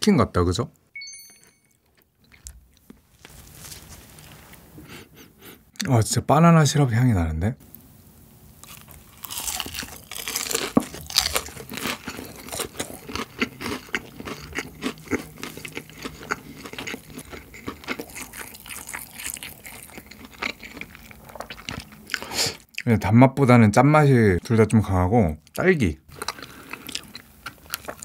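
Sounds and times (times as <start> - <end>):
crunching and chewing fried chicken: 1.8 - 4.4, 8.6 - 22.9, 25.4 - 28.0.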